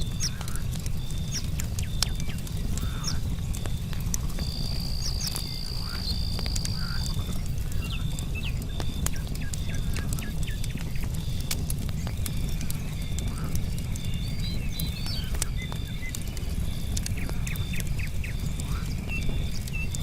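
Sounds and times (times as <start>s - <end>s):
campfire crackling and popping: 0.0s - 20.0s
insect chorus: 4.3s - 8.4s.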